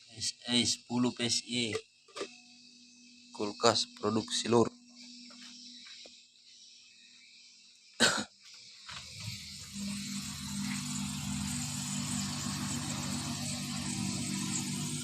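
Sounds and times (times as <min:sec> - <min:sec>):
person coughing: 0:08.0 - 0:08.3
refrigerator compressor humming: 0:08.9 - 0:15.0.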